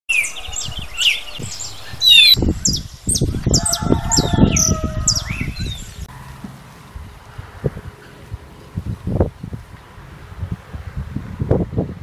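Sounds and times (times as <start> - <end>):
birds chirping and calling: 0.1 - 6.1.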